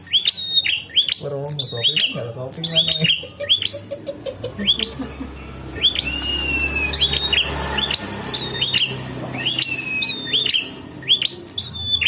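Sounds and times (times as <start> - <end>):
bird chirping sharply: 0.0 - 3.9, 4.5 - 12.0
long thin bird whistle: 5.8 - 11.9.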